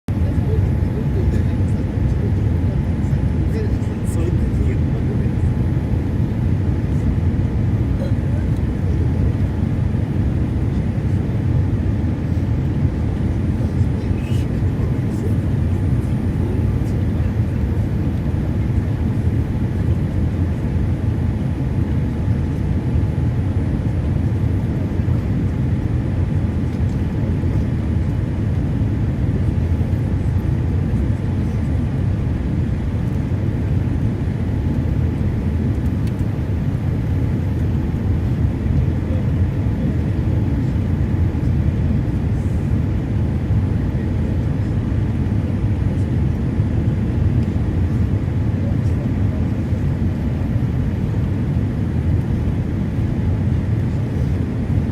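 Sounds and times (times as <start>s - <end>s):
jet cabin engine rumble: 0.1s - 54.9s.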